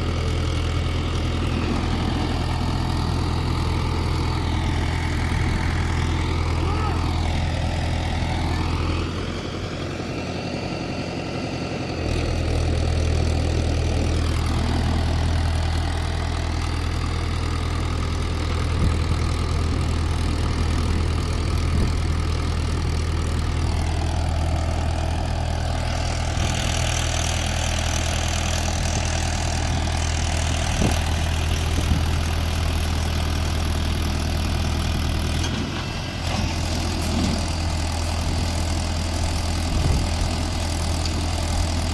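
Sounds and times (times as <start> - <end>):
tractor diesel engine straining: 0.0 - 41.9.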